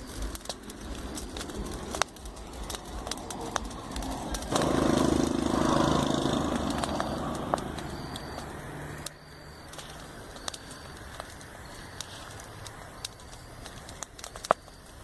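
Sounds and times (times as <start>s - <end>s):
campfire crackling and popping: 0.0s - 15.0s
passing vehicle engine hum: 0.9s - 10.2s.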